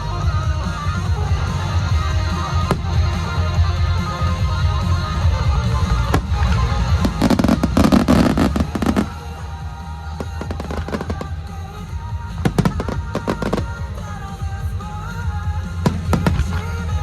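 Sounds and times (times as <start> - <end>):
loud recorded music: 0.0 - 17.0
fireworks bangs and crackles: 0.8 - 17.0.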